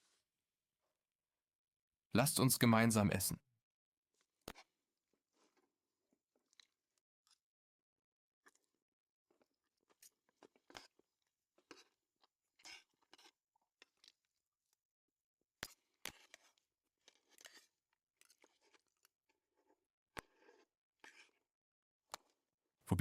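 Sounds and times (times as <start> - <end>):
people chewing and crunching: 18.2 - 21.4.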